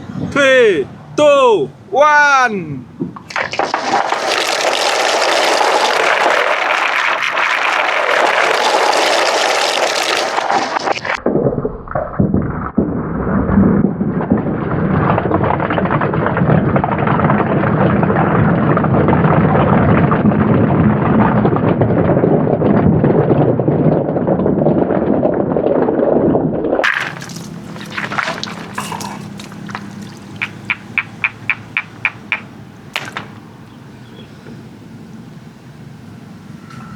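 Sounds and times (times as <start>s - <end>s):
marbles rolling on wooden track: 3.5s - 11.1s.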